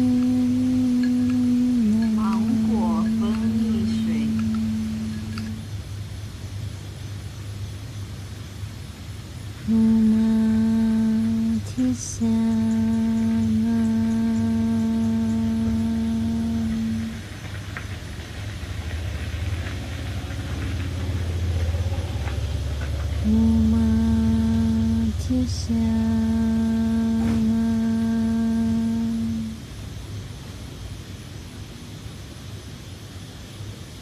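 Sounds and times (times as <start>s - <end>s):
woman humming: 0.0s - 5.7s, 9.6s - 17.2s, 23.2s - 29.6s
low rumbling drone: 0.0s - 32.5s.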